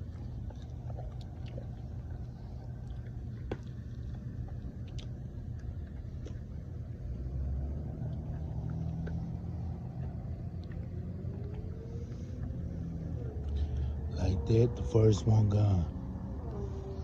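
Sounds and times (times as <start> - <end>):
faint rising whine: 0.0 - 17.0
vehicle engine rumbling: 0.0 - 17.0.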